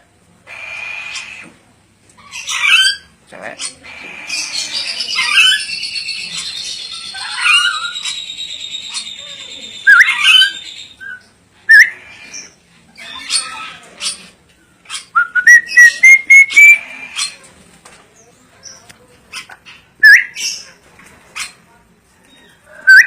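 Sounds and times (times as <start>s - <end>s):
parrot chirping: 0.5s - 1.4s, 2.2s - 14.3s, 14.9s - 17.4s, 19.3s - 20.7s
parrot whistling: 4.7s - 12.0s, 15.2s - 16.8s.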